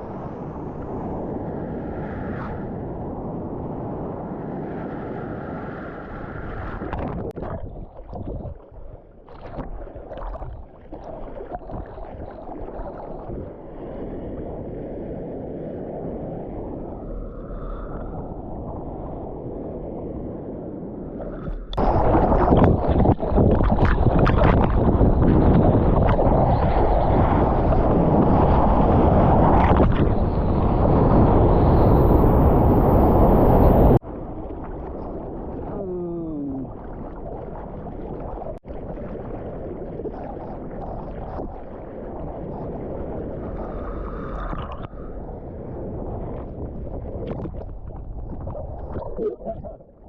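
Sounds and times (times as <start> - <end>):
water and wind rushing: 0.0 - 50.0
choppy water splashing: 6.6 - 20.2, 21.0 - 31.3, 33.4 - 50.0.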